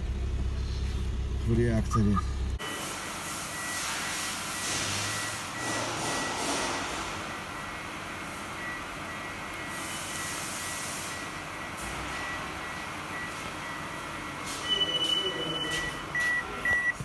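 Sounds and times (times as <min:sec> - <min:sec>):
vehicle running noise: 0:00.0 - 0:17.0
high electronic tone: 0:01.8 - 0:02.9
quick electronic beeps: 0:01.8 - 0:02.9.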